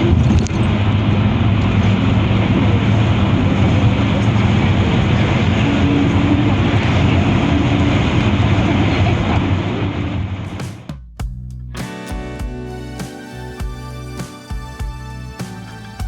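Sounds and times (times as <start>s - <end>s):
moving vehicle drone: 0.0s - 10.4s.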